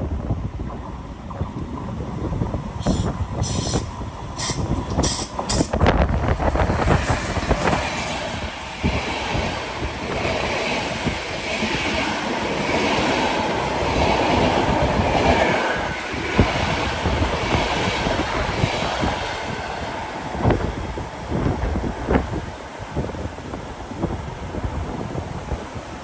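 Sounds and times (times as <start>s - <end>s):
train wheels rumbling on rails: 0.0s - 26.0s
wheels clicking over rail joints: 2.8s - 17.5s.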